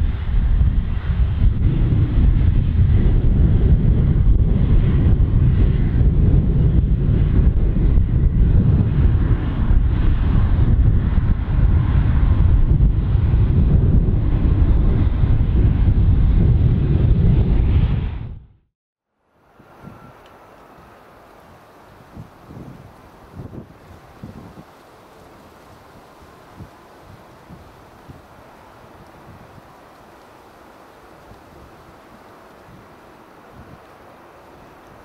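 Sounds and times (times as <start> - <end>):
jet engines roaring: 0.0 - 18.4, 19.3 - 35.0.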